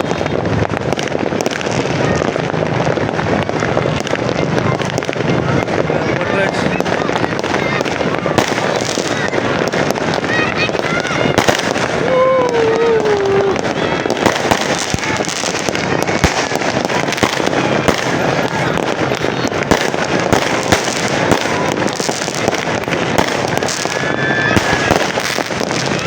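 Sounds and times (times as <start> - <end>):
fireworks popping and crackling: 0.0 - 26.0.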